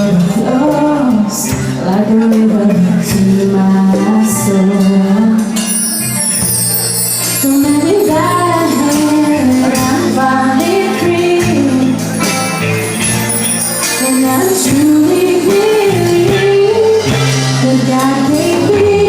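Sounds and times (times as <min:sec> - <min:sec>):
live band playing pop ballad: 0:00.0 - 0:19.0.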